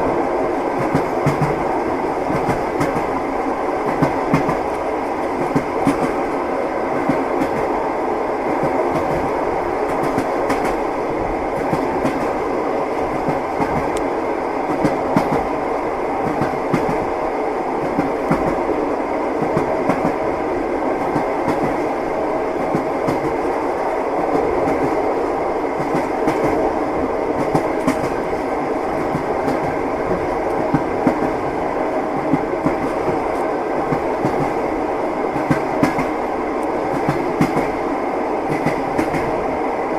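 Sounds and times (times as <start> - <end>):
train rolling rumble: 0.0 - 39.9
train wheels clacking over rail joints: 0.8 - 1.6, 35.4 - 36.2, 36.9 - 37.8.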